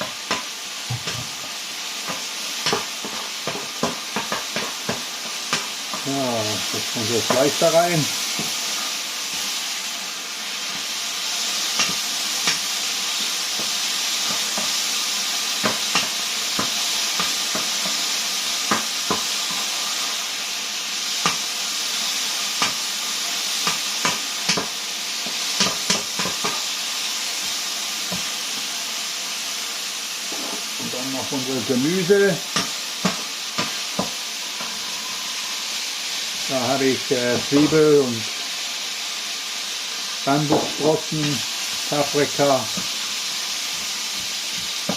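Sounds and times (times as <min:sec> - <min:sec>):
meat sizzling in a wok: 0:00.0 - 0:44.9
spatula scraping a wok: 0:30.2 - 0:30.8, 0:32.4 - 0:36.4.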